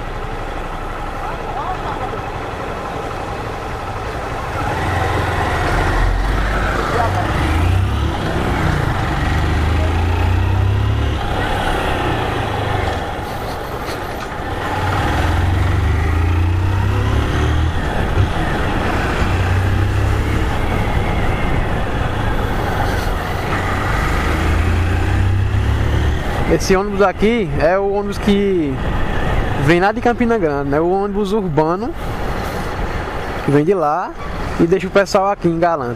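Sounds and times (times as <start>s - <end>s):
motorcycle engine: 0.0s - 28.0s
road traffic: 0.0s - 35.9s
wind rushing over microphone: 16.3s - 30.4s.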